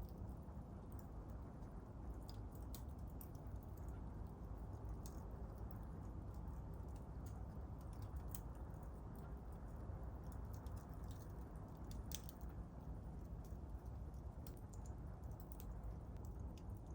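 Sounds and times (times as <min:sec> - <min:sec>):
low steady rumble: 0:00.0 - 0:16.9
campfire crackling and popping: 0:11.8 - 0:12.6.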